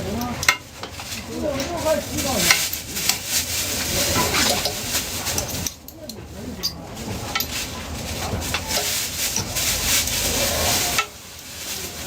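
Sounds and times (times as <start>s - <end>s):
rasping scraping noise: 7.0s - 12.0s.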